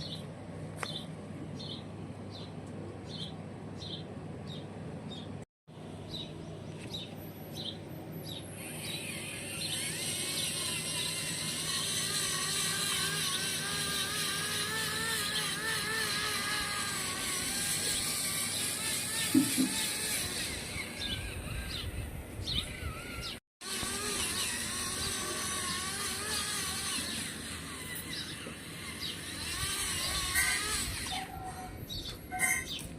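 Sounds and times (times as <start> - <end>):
birds chirping: 0.0 - 32.9
small electric motors whining: 7.6 - 32.9.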